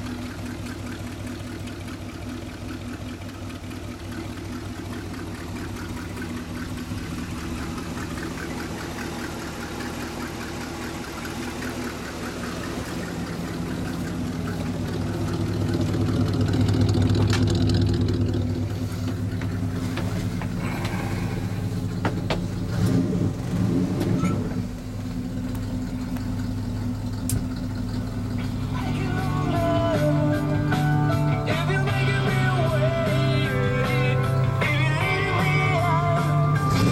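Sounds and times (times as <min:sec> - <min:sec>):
truck engine running: 0:00.0 - 0:36.9
sharp clicks: 0:27.2 - 0:27.5.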